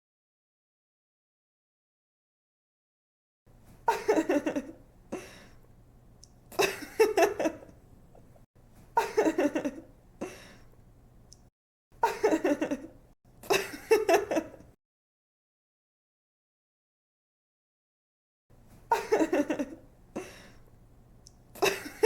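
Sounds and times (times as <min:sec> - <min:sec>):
girl giggling: 0:06.6 - 0:07.7, 0:12.0 - 0:14.7, 0:18.9 - 0:20.4, 0:21.6 - 0:22.0.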